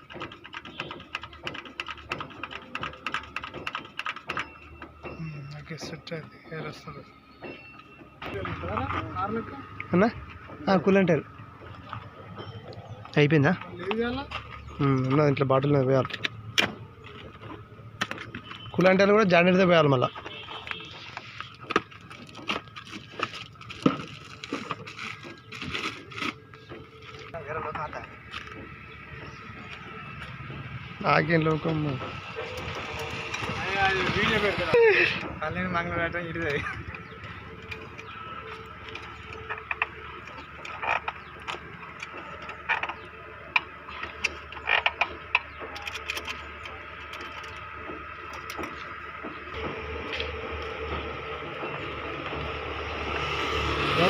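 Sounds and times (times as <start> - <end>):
tools and parts clicking: 0.0 - 5.2, 36.4 - 49.3
steady background hum: 21.7 - 54.0.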